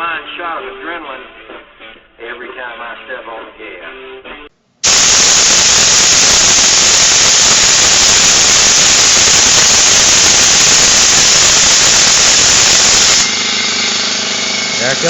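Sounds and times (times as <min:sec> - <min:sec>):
compressed air hissing: 0:04.8 - 0:15.0.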